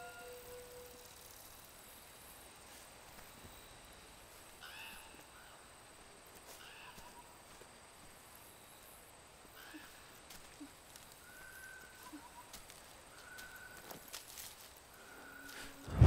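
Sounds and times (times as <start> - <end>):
bird calls: 9.5 - 14.1.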